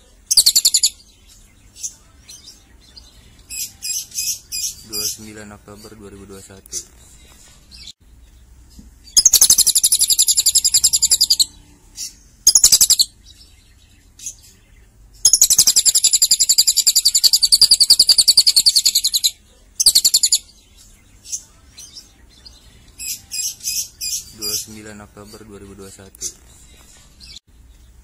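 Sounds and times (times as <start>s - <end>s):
lovebird chirps: 0.1s - 28.0s
lovebird trilling: 0.3s - 1.0s, 9.1s - 13.2s, 15.2s - 20.5s.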